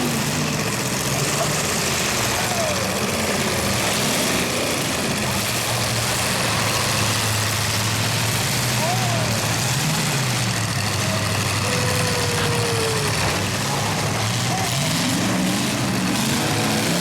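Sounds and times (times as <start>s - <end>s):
car engines running and revving: 0.0s - 17.0s.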